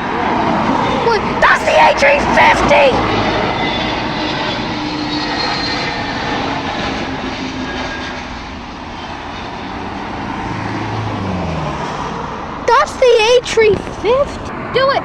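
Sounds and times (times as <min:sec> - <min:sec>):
jet engines running: 0:00.4 - 0:10.9.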